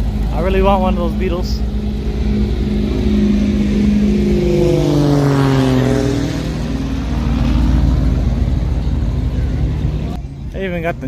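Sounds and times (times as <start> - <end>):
engine passing by: 0.0 - 10.3.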